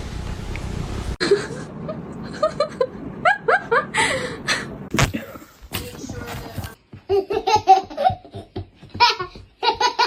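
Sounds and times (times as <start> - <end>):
person laughing: 1.2 - 5.4.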